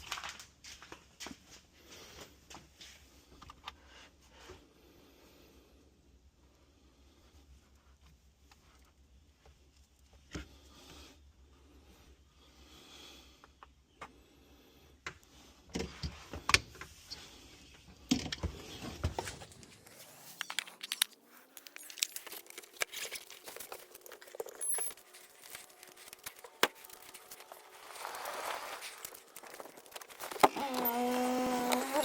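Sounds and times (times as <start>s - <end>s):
handling clicks and knocks: 20.4s - 27.5s
keys jangling: 21.6s - 26.6s.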